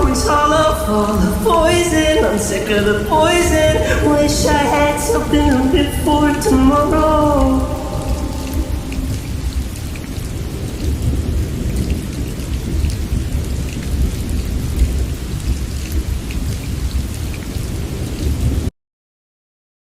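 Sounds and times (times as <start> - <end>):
low rumble: 0.0 - 10.6
raindrops ticking: 0.0 - 17.6
heavy rain: 0.0 - 18.7.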